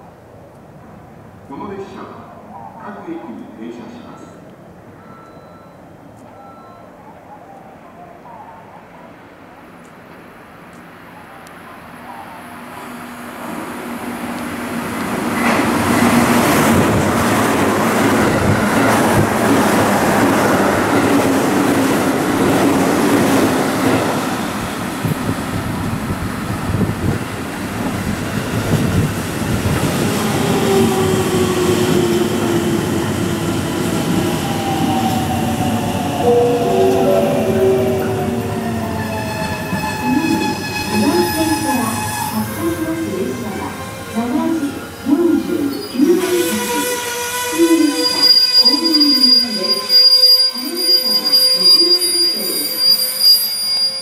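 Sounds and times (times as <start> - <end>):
train wheel-on-rail clatter: 13.4 - 30.5.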